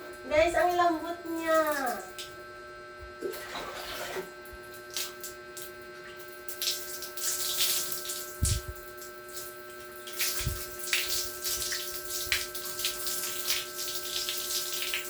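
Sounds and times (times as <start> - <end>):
steady hum: 0.0 - 15.0
tap water splashing on hair: 3.2 - 15.0.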